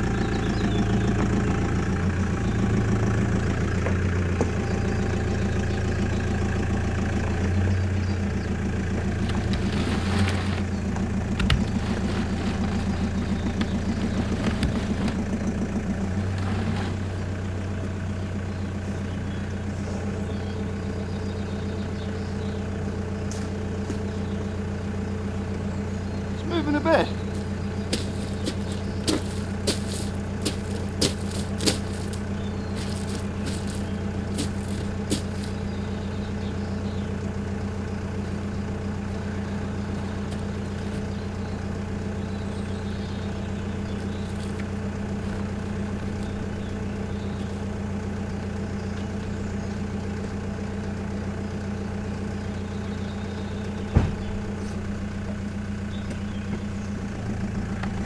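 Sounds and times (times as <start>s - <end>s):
truck engine idling: 0.0s - 58.0s
single knock: 53.9s - 54.3s.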